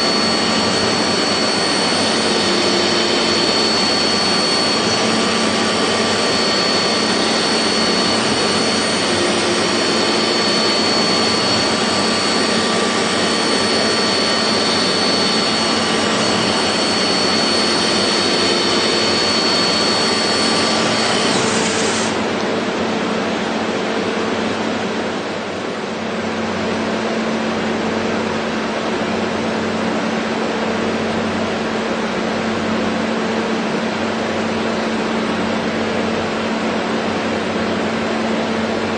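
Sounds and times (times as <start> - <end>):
machine whirring hiss: 0.0 - 22.4
thin high whine: 0.0 - 26.2.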